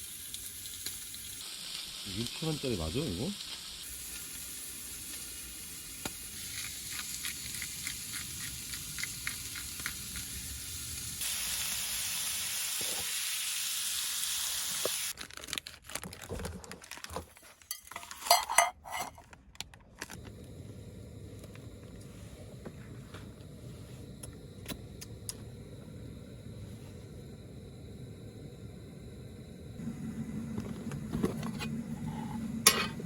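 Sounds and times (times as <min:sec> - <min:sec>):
food sizzling in a pan: 0:00.0 - 0:15.2
cookware clanking: 0:17.7 - 0:19.2, 0:31.2 - 0:33.0
utensil scraping a pan: 0:31.2 - 0:33.0.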